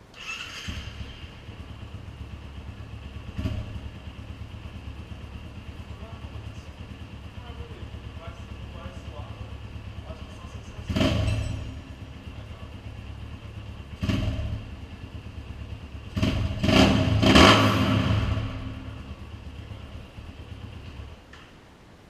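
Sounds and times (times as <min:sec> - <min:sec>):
motorcycle engine idling and revving: 0:00.0 - 0:21.5.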